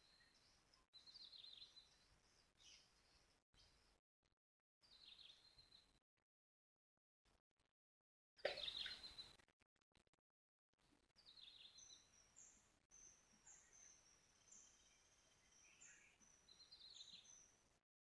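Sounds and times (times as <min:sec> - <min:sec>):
faint bird chirps: 0:08.5 - 0:09.3, 0:11.2 - 0:17.6.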